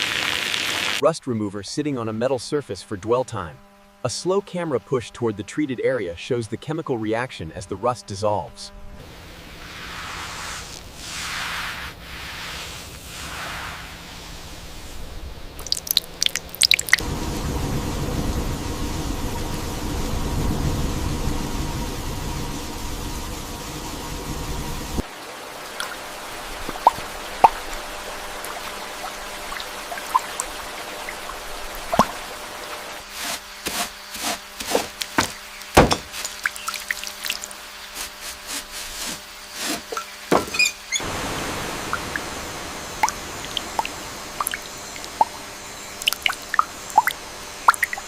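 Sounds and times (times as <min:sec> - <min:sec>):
liquid dripping: 0:15.6 - 0:17.0, 0:25.0 - 0:32.8, 0:35.0 - 0:37.6, 0:43.0 - 0:48.0
low rumble: 0:17.0 - 0:25.0.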